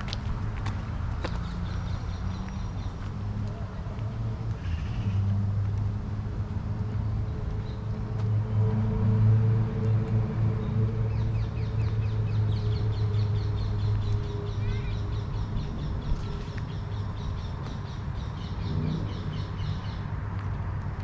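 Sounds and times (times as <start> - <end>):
songbird chirping: 9.8 - 20.2.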